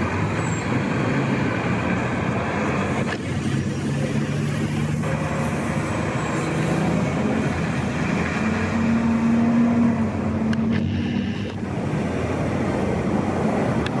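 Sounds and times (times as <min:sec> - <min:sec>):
short clicks: 0:10.5 - 0:11.6.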